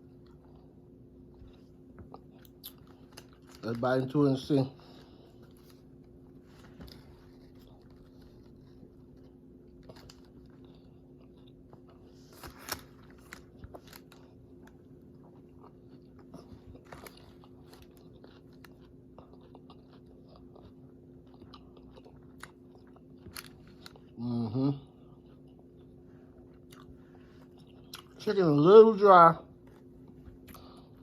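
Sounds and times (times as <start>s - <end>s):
crunchy chewing: 0.0s - 3.8s, 4.9s - 28.2s
steady low hum: 0.0s - 31.0s.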